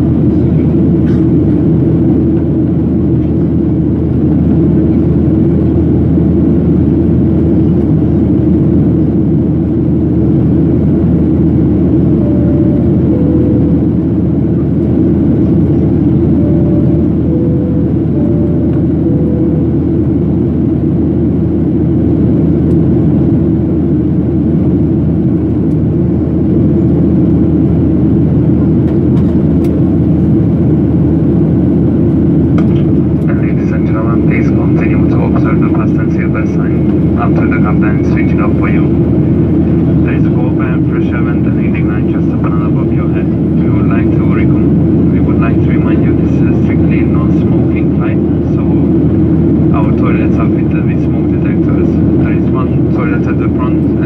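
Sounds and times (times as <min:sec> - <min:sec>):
airplane cabin rumble: 0:00.0 - 0:54.0
two-tone cabin chime: 0:12.1 - 0:14.2, 0:16.2 - 0:20.2.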